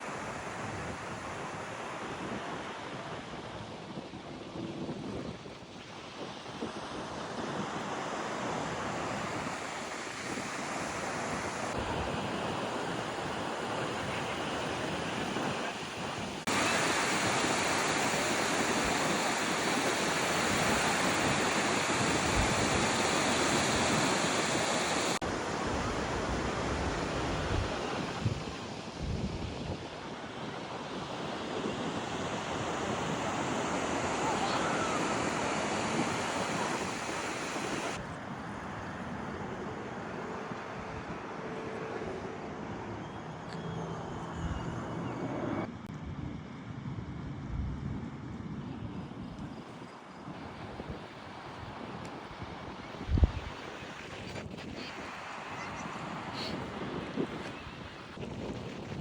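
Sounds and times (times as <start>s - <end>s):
wind on microphone: 0.1s - 59.0s
ocean waves breaking: 6.2s - 29.0s, 29.8s - 43.0s, 50.3s - 58.2s.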